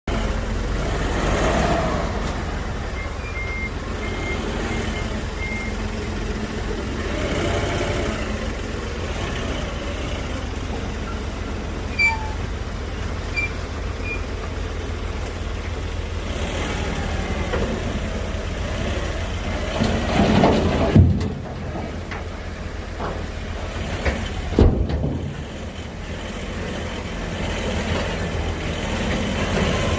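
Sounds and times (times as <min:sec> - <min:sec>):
large engine running: 0:00.0 - 0:29.9
faint high beeps: 0:03.0 - 0:05.8, 0:13.3 - 0:14.3.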